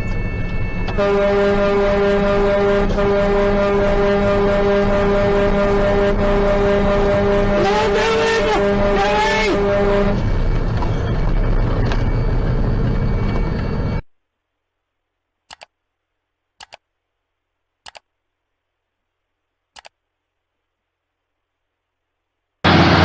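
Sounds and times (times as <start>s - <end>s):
car road and engine rumble: 0.0s - 14.0s, 22.7s - 23.0s.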